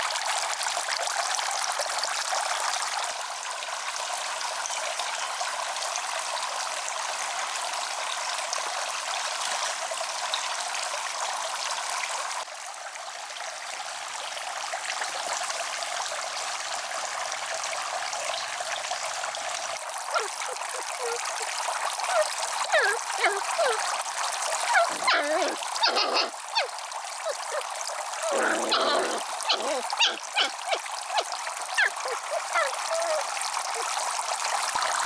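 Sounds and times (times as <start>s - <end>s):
running water rushing: 19.8s - 35.0s.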